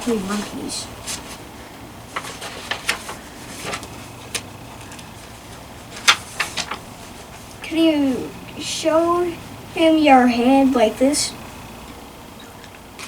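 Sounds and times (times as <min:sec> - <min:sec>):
book pages rustling: 0:00.0 - 0:07.6.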